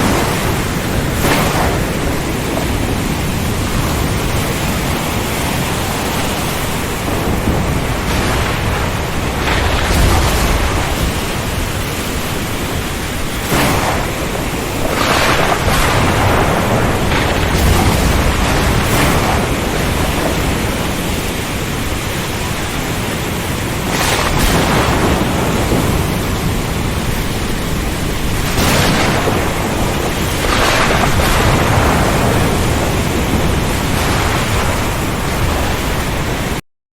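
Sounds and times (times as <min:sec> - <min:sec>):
heavy rain hissing: 0:00.0 - 0:36.6.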